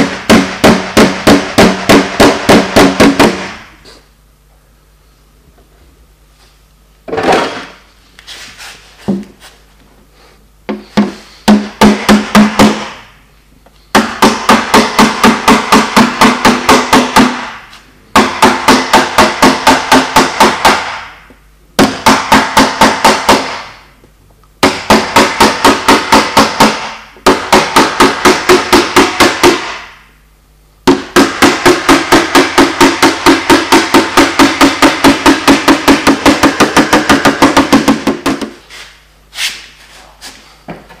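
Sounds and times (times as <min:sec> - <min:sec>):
hammer tapping on sheet metal: 0:00.0 - 0:03.7, 0:10.7 - 0:13.1, 0:13.9 - 0:23.9, 0:24.6 - 0:30.1, 0:30.8 - 0:38.6.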